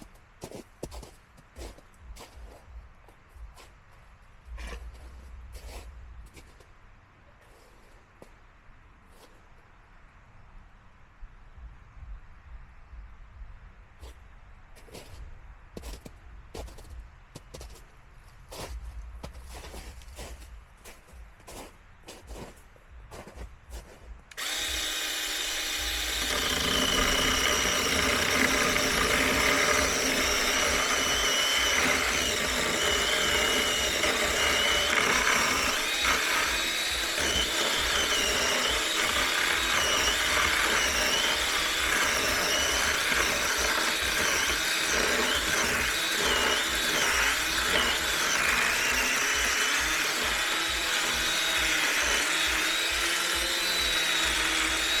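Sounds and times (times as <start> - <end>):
electric chainsaw cutting wood: 24.3 - 55.0.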